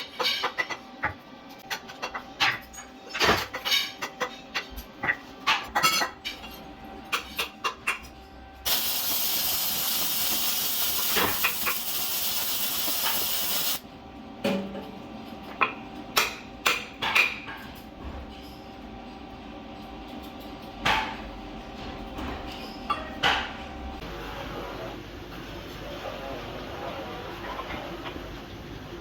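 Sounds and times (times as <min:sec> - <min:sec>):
loud steady hiss: 0:08.7 - 0:13.8.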